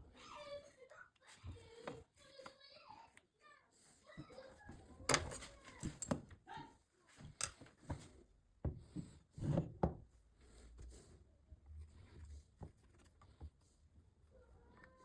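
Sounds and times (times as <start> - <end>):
hard parts knocking and clicking: 5.1 - 6.3.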